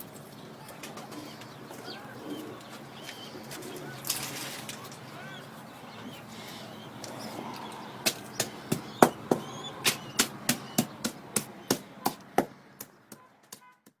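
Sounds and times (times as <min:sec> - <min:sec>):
sharp knocks: 0:08.0 - 0:13.7.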